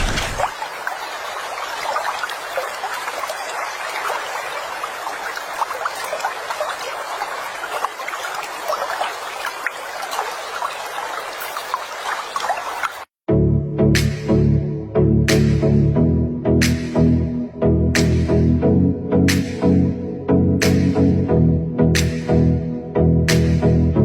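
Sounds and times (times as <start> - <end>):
water running and trickling: 0.0 - 13.1
water splashes and drips: 0.0 - 13.2, 18.0 - 18.4, 19.3 - 19.8, 20.6 - 21.0, 22.0 - 22.5.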